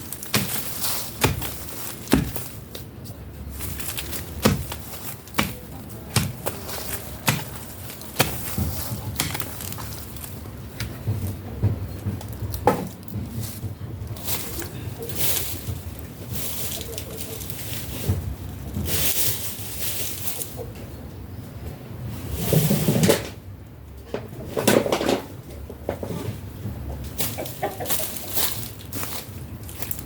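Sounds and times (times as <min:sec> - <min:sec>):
thuds of digging in soil: 0:00.2 - 0:02.6, 0:03.6 - 0:09.7.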